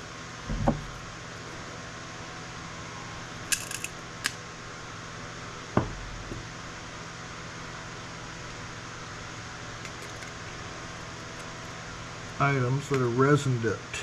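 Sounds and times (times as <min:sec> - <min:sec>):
steady background hum: 0:00.0 - 0:14.0
dull thump: 0:00.5 - 0:00.9, 0:05.8 - 0:06.0.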